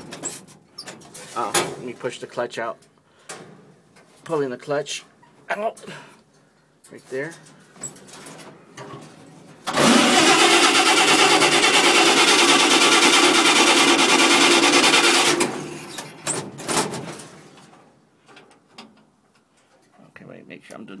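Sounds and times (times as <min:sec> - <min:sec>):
truck engine turning over: 0:09.6 - 0:17.6.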